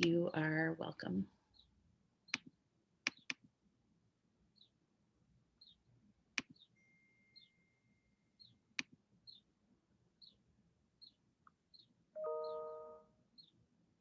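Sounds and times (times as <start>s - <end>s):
sharp clicks: 2.3s - 3.5s
faint high chirps: 6.5s - 8.6s, 11.8s - 13.6s
faint steady high tone: 6.7s - 8.6s, 12.2s - 13.3s.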